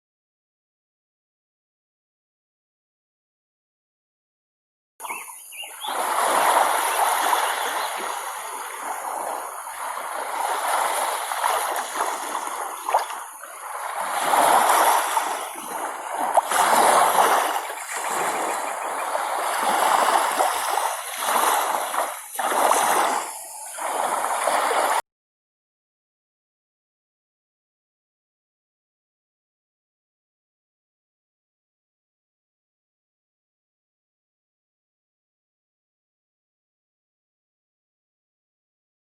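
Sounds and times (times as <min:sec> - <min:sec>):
water splashing and rushing: 0:05.0 - 0:25.0.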